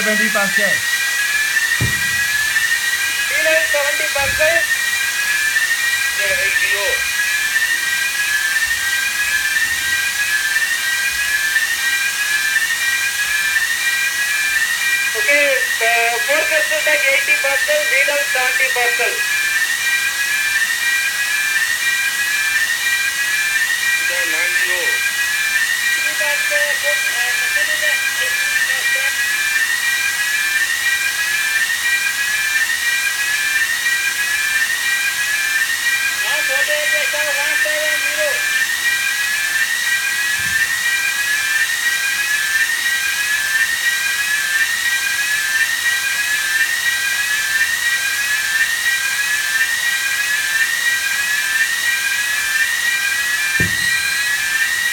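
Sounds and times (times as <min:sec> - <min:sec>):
engine room machinery whine: 0:00.0 - 0:54.9
ventilation fans rushing air: 0:01.7 - 0:05.6
rising tone: 0:01.8 - 0:03.4.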